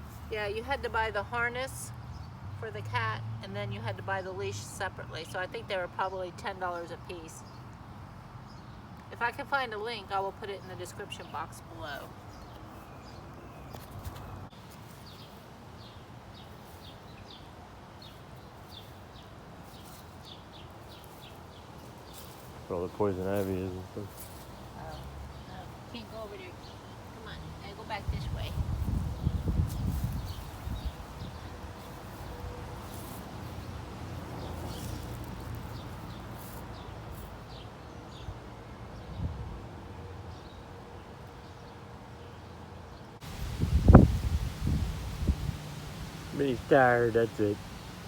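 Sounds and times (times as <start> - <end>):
rustles: 0.0 - 0.4, 10.8 - 37.6, 43.2 - 48.0
bird chirping: 10.6 - 33.7
steady background hiss: 43.2 - 48.0.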